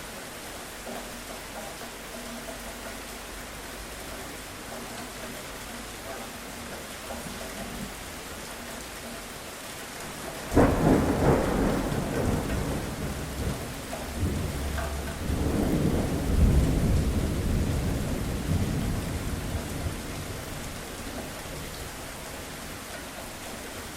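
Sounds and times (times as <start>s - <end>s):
steady rain: 0.0s - 23.9s
thunderclap rumbling: 10.1s - 21.7s.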